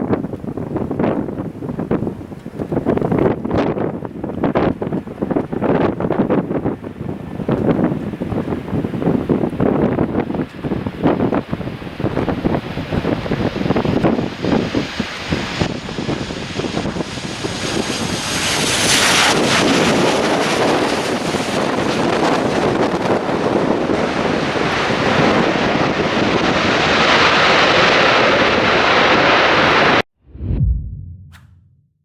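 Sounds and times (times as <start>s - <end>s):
wind buffeting microphone: 0.0s - 27.6s
jet airliner engine roar: 3.8s - 31.6s.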